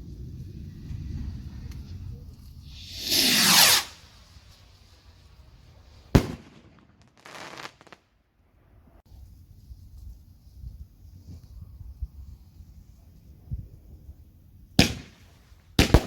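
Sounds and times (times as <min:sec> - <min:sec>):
firework whoosh: 0:00.0 - 0:08.0
firework bang: 0:02.6 - 0:04.1, 0:06.1 - 0:07.8
hissing burst: 0:02.6 - 0:04.5.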